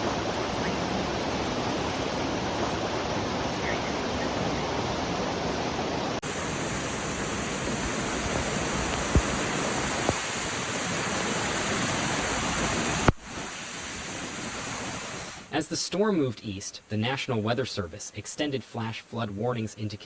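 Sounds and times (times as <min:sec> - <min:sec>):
rushing floodwater roar: 0:00.0 - 0:15.7.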